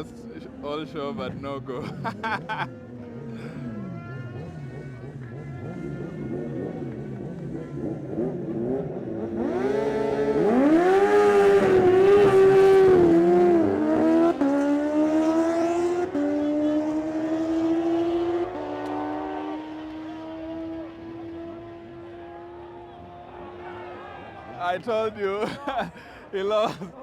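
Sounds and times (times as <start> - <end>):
motorcycle engine revving and upshifting: 2.7 - 24.0.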